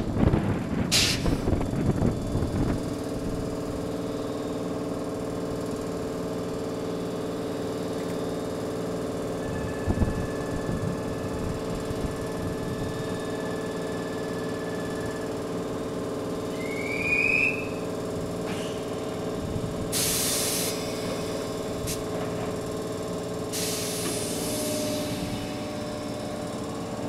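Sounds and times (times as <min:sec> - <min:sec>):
electric train equipment hum: 0:00.0 - 0:27.0
compressed air hiss: 0:00.9 - 0:01.5, 0:19.9 - 0:22.0, 0:23.5 - 0:25.7.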